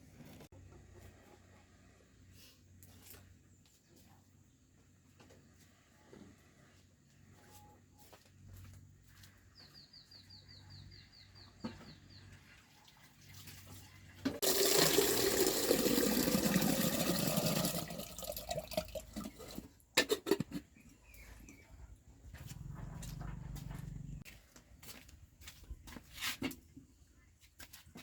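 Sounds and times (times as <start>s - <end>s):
water running: 14.2s - 19.7s.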